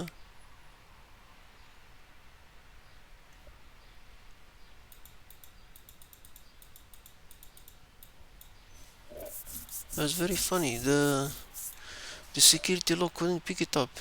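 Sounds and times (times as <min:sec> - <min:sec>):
keyboard typing clicks: 0:04.9 - 0:08.5.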